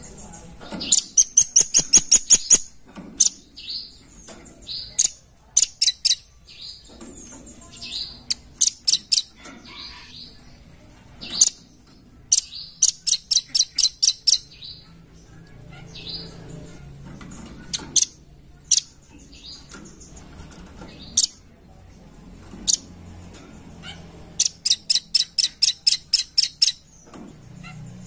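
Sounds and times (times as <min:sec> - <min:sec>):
nuthatch high chirps: 0:00.1 - 0:10.4, 0:12.3 - 0:14.9, 0:24.4 - 0:27.0.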